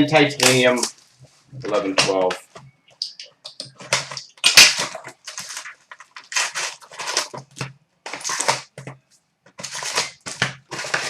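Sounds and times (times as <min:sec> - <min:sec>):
cardboard and wrapping tearing: 0:03.8 - 0:08.8, 0:09.6 - 0:11.0.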